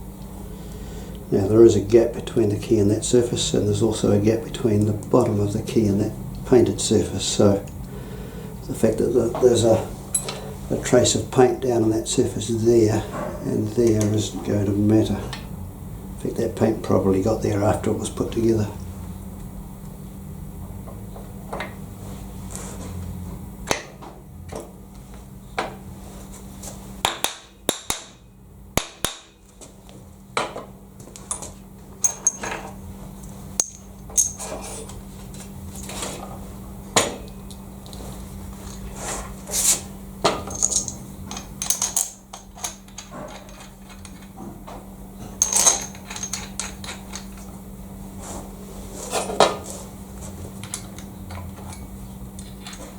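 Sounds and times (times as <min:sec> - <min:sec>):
steady low hum: 0:00.0 - 0:52.9
metallic clinks of tools: 0:10.1 - 0:10.4, 0:31.3 - 0:32.6, 0:33.6 - 0:34.5, 0:40.5 - 0:44.3, 0:45.4 - 0:47.4.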